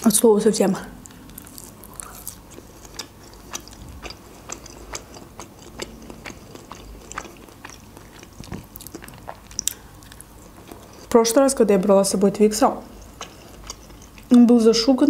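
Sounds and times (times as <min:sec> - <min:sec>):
chewing mouth clicks: 0:01.0 - 0:11.2, 0:12.9 - 0:14.3.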